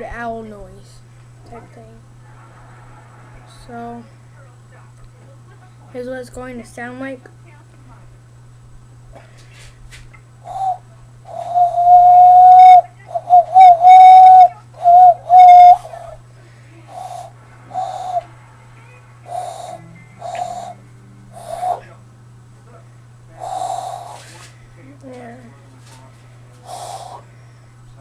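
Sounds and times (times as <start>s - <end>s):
faint steady low hum: 0.0s - 28.0s
hand-cupped owl call hoots: 10.4s - 16.0s, 16.9s - 18.3s, 19.2s - 21.9s, 23.4s - 24.4s, 26.6s - 27.3s.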